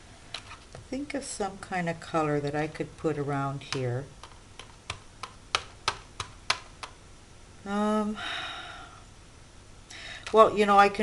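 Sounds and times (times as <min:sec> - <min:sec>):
soft breathy sound: 0:08.1 - 0:09.1.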